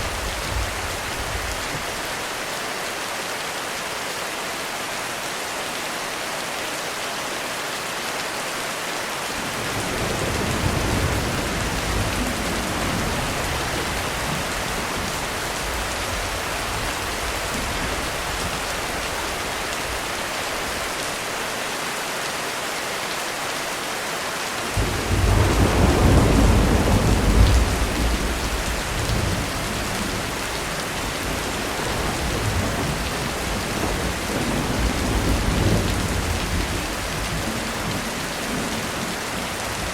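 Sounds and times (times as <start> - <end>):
heavy rain falling: 0.0 - 39.9
thunder rumbling: 9.4 - 19.5, 24.8 - 39.9.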